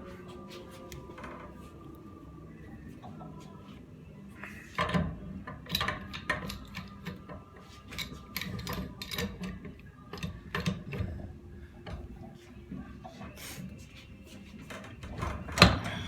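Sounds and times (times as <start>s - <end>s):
hand tools clicking on metal: 4.7s - 11.0s.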